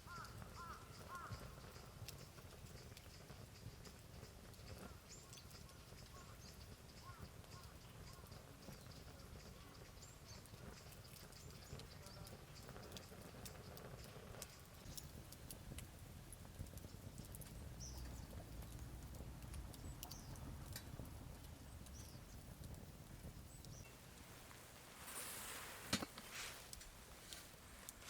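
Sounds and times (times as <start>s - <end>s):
low outdoor rumble: 15.0s - 28.0s
light clicks and taps: 16.6s - 23.9s
rustling noise: 24.0s - 28.0s.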